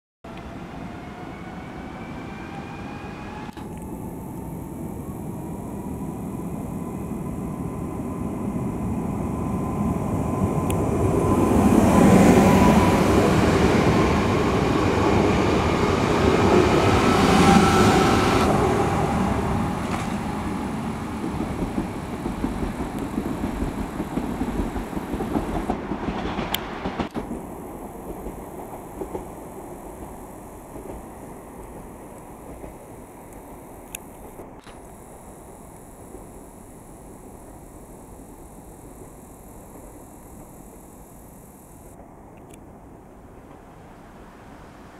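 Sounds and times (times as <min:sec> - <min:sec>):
train motor whine: 0:00.3 - 0:42.0
train wheels rumbling and clattering: 0:13.3 - 0:33.0.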